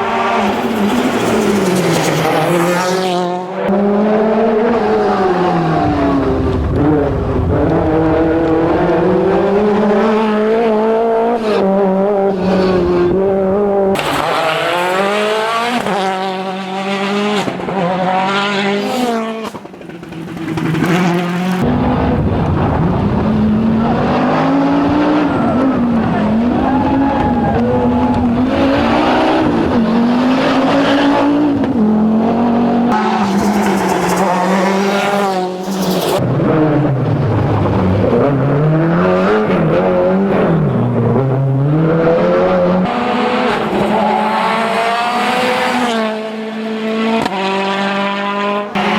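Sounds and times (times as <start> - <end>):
rally car engines revving: 0.0 - 48.9
tyre noise on road: 18.6 - 38.5.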